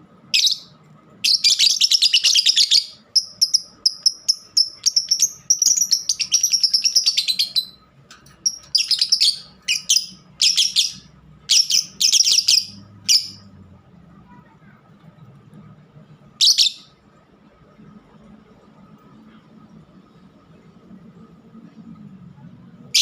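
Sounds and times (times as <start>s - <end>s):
lovebirds chirping and chattering: 0.4s - 7.8s, 8.4s - 13.5s.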